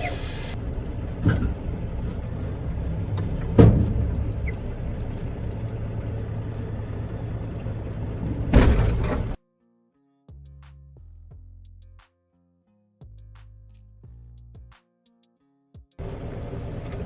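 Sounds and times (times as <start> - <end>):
truck engine and road rumble: 0.0 - 9.4, 16.0 - 17.0.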